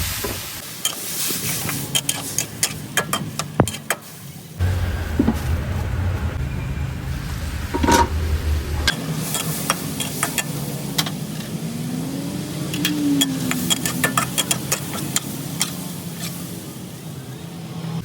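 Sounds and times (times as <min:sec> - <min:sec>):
food sizzling: 0:00.0 - 0:17.1
low rumble: 0:04.6 - 0:09.0.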